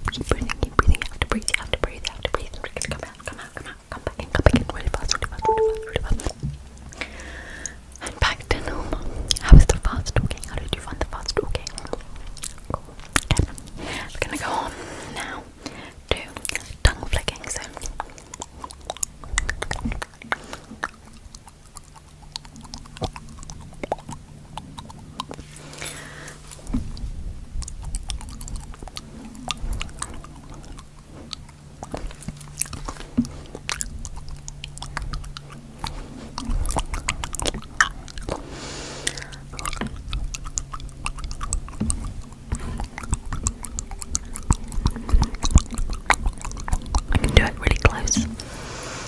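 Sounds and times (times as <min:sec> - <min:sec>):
wet tongue clicks and smacks: 0:09.3 - 0:14.6, 0:15.6 - 0:38.4, 0:39.0 - 0:48.6.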